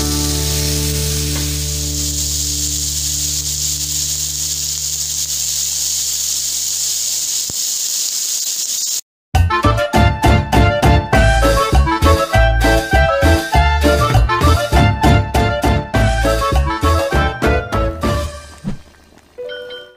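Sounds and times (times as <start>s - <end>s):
prawns sizzling in oil: 0.0s - 9.0s.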